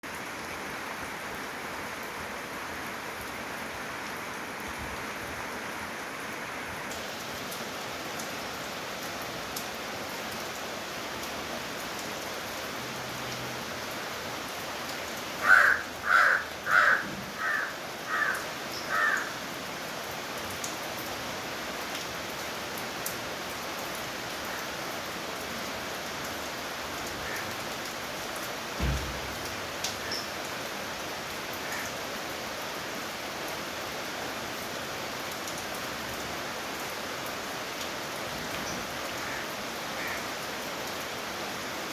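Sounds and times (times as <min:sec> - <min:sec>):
steady rainfall: 0:00.0 - 0:41.9
bird calling: 0:15.4 - 0:19.4.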